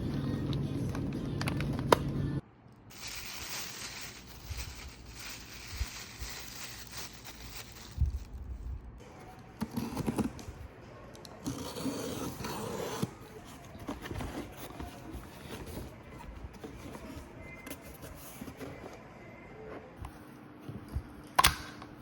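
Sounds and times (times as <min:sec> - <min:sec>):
scraping and rustling: 0:02.9 - 0:08.5, 0:12.8 - 0:19.0.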